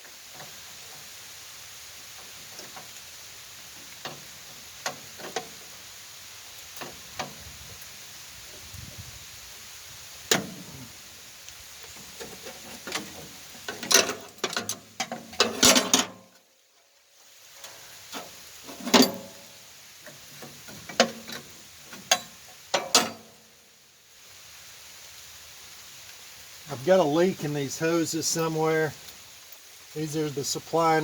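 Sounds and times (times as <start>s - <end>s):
clicks and knocks of tools: 11.9s - 16.2s, 20.0s - 23.3s.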